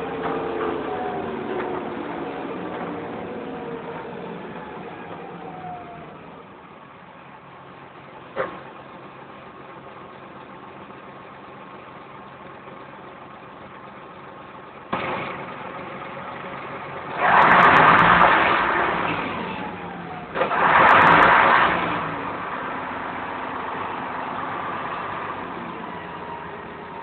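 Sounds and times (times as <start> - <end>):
car engine starting and revving: 0.0 - 6.5, 14.9 - 27.0.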